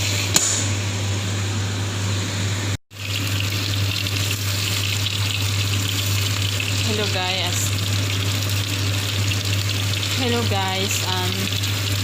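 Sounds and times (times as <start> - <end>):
chicken sizzling on a grill: 2.9 - 12.0.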